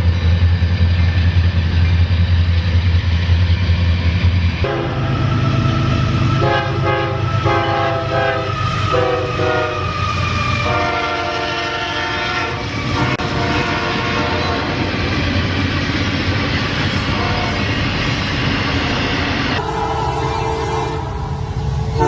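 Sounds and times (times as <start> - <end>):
rumble of passing train: 0.0 - 22.0
locomotive air horn blasts: 4.6 - 10.0, 10.6 - 14.8, 17.1 - 17.7, 19.6 - 22.0.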